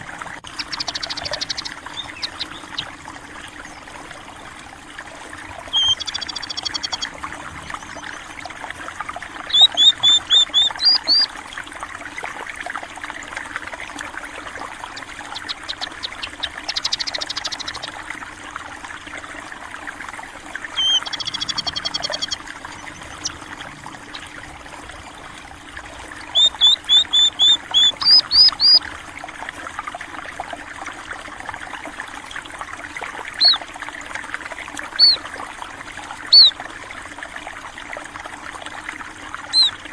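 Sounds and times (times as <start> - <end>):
flowing water: 0.0 - 39.9
songbird chirping: 0.6 - 2.9, 5.7 - 8.3, 9.5 - 11.3, 14.9 - 18.0, 20.7 - 24.5, 26.2 - 28.8, 33.4 - 33.6, 35.0 - 35.2, 36.3 - 36.5, 39.5 - 39.8.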